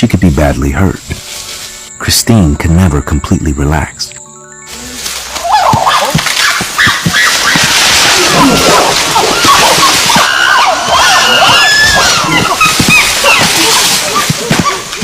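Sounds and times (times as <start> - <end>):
chimpanzees calling and screaming: 4.6 - 15.0.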